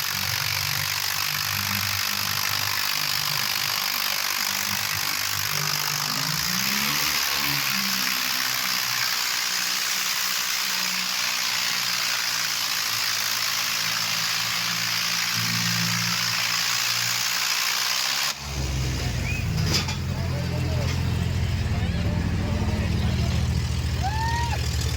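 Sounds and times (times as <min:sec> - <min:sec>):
tractor engines revving: 0:00.0 - 0:24.9
deeper close engine: 0:14.6 - 0:24.9.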